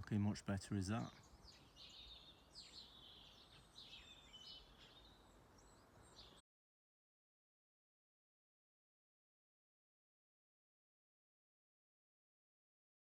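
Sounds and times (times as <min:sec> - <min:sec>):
outdoor background noise: 0:00.0 - 0:06.4
songbird chirps and trills: 0:00.0 - 0:06.4.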